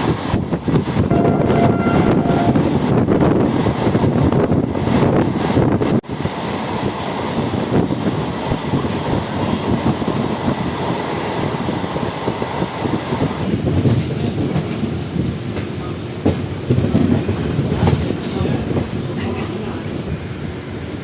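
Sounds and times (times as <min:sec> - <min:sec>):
train wheels rumbling on rails: 0:00.0 - 0:21.0
high wheel squeal: 0:15.0 - 0:16.3.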